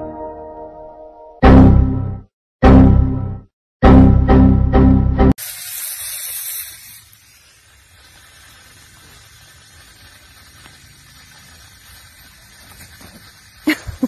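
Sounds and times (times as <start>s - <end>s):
high hiss: 5.4s - 14.0s.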